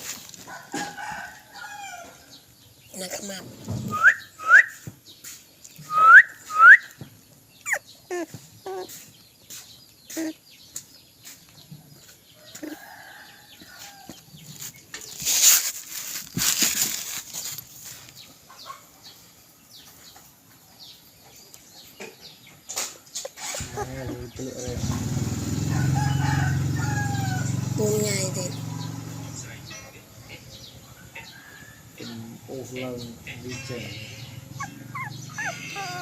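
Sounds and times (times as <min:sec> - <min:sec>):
rustling noise: 0:00.0 - 0:01.0, 0:13.6 - 0:18.5
bird whistled calls: 0:03.8 - 0:04.9, 0:05.8 - 0:07.0.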